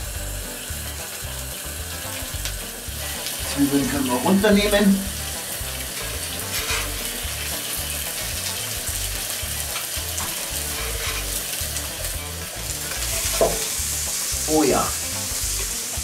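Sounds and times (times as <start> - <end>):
food sizzling on a griddle: 0.0 - 16.0.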